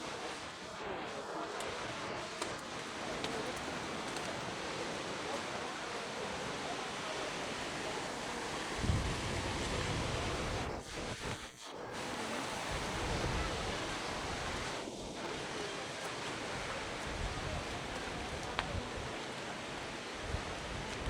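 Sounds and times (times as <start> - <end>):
river water rushing: 0.0 - 11.2.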